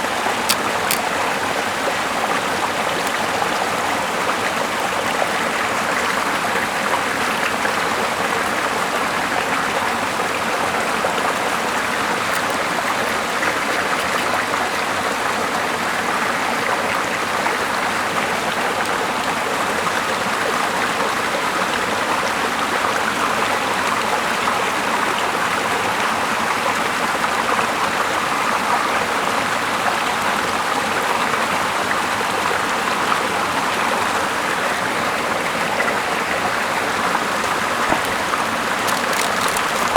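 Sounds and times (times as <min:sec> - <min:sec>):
river water flowing: 0:00.0 - 0:25.5, 0:26.2 - 0:39.9.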